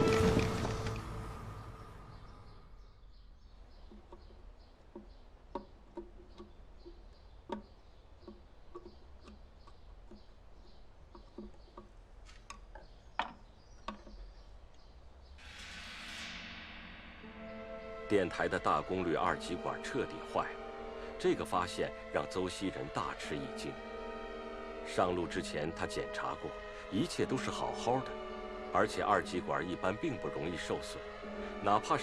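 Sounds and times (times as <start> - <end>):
light clicks and knocks: 3.7 - 14.9.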